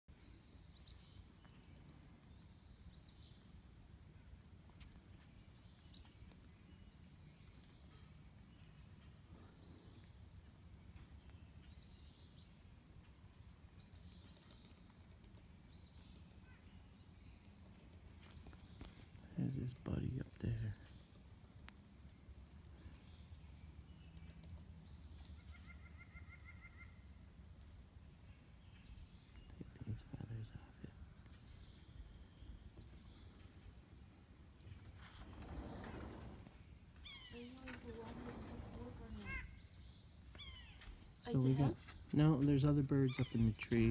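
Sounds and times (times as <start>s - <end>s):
bird chirps and trill: 37.0s - 37.6s, 43.1s - 43.7s.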